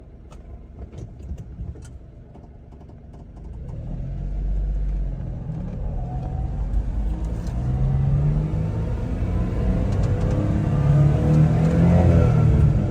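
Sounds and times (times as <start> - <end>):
small truck engine accelerating: 3.6 - 12.9.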